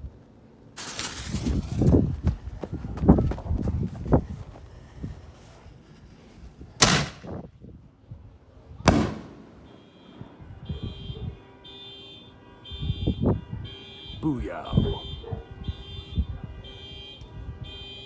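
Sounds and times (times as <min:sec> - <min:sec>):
firework booms: 0:06.8 - 0:07.4, 0:08.9 - 0:09.7.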